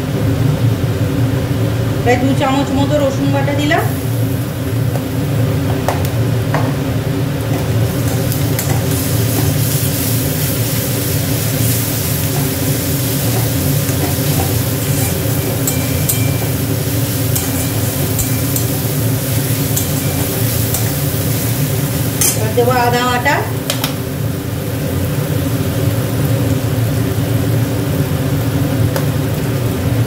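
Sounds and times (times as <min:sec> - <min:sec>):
steady low hum: 0:00.0 - 0:24.9
onions sizzling in hot oil: 0:01.6 - 0:30.0
metal spatula scraping pan: 0:11.4 - 0:21.6.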